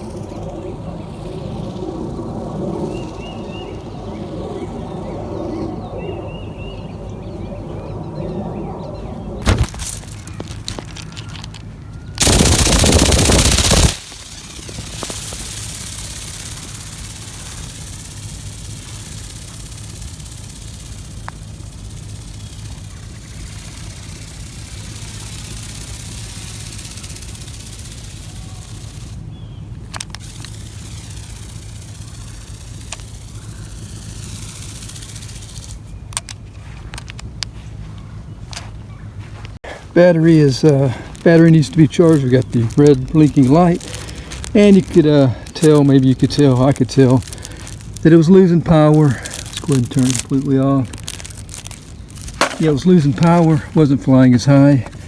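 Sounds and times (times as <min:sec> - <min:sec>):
toy bird wing mechanism buzzing: 0:00.0 - 0:03.9, 0:09.4 - 0:37.5, 0:40.2 - 0:55.0
sharp clicks: 0:09.4 - 0:29.2, 0:29.8 - 0:37.6, 0:40.4 - 0:55.0.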